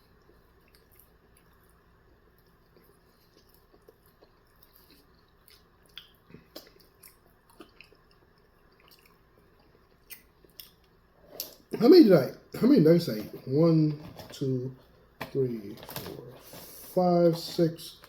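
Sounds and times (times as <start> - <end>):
wet chewing mouth sounds: 0.1 - 11.6.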